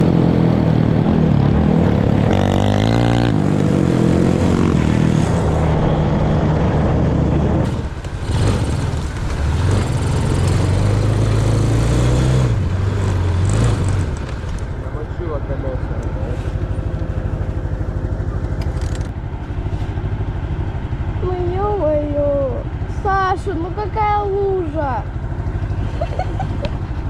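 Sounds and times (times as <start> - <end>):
off-road vehicle engine running: 0.0 - 27.0.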